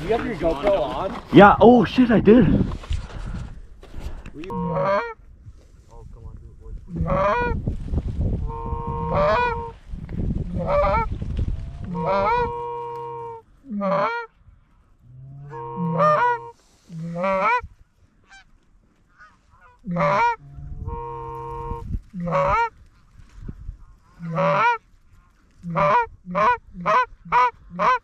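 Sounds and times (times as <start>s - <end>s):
goose honking: 4.4s - 5.2s, 6.9s - 7.6s, 8.4s - 9.8s, 10.5s - 11.1s, 11.9s - 14.3s, 15.4s - 18.5s, 19.1s - 22.7s, 24.1s - 24.8s, 25.6s - 28.0s.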